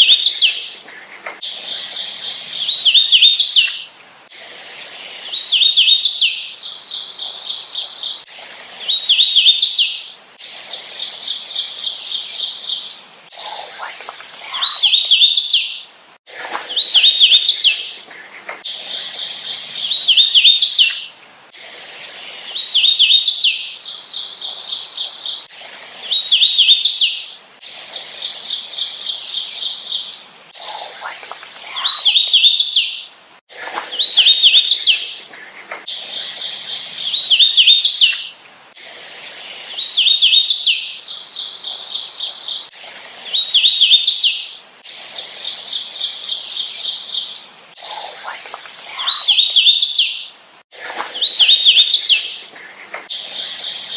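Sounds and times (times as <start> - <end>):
bird singing whistled phrases: 1.4 - 3.9, 14.4 - 15.9, 18.8 - 21.1, 31.7 - 33.1, 35.9 - 38.4, 48.9 - 50.3, 51.2 - 52.4.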